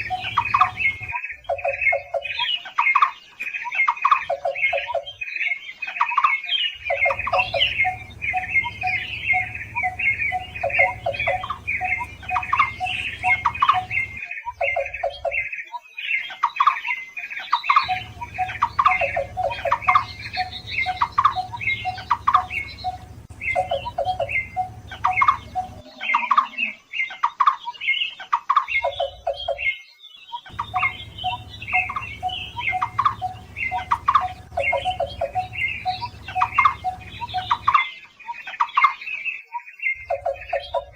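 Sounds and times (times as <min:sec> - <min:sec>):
steady low hum: 0:00.0 - 0:01.2, 0:06.8 - 0:14.2, 0:17.8 - 0:25.8, 0:30.5 - 0:37.7
barbet calls: 0:00.0 - 0:02.5, 0:06.8 - 0:15.4, 0:17.8 - 0:26.8, 0:30.5 - 0:37.8, 0:40.0 - 0:40.9.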